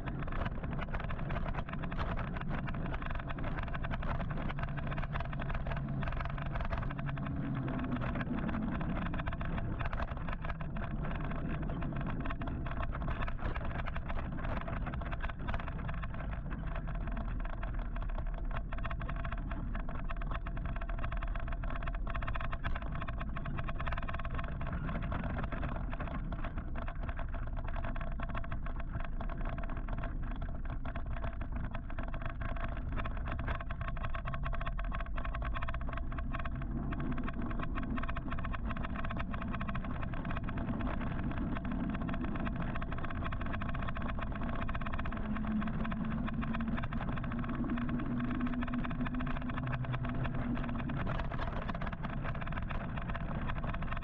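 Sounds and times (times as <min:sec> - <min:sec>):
low engine hum: 0:00.0 - 0:54.0
wind and road noise: 0:00.0 - 0:54.0
thin steady whine: 0:32.0 - 0:54.0.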